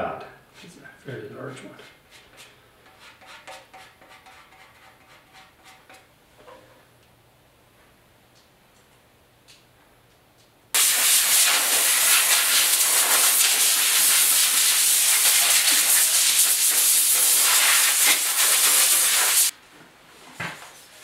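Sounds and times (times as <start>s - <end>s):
pressurized air hissing: 10.8s - 19.5s.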